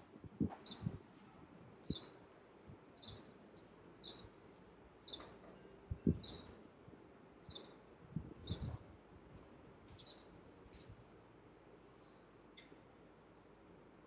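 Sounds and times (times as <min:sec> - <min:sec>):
bird chirping: 0:00.6 - 0:00.9, 0:01.8 - 0:02.1, 0:03.0 - 0:04.3, 0:05.0 - 0:06.5, 0:07.4 - 0:07.8, 0:08.4 - 0:08.7.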